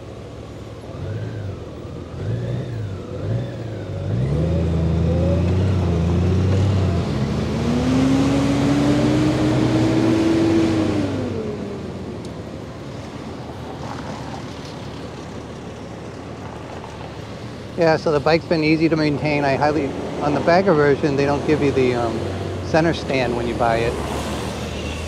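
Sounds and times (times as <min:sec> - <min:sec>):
motorcycle engine revving: 0:00.8 - 0:12.4.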